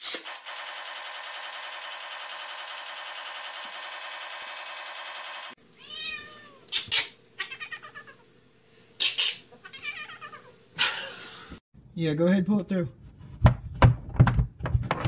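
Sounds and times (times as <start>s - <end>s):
cat meowing: 5.8s - 6.7s, 7.4s - 8.2s, 9.6s - 10.5s
cat trilling: 5.8s - 8.2s, 9.5s - 10.5s.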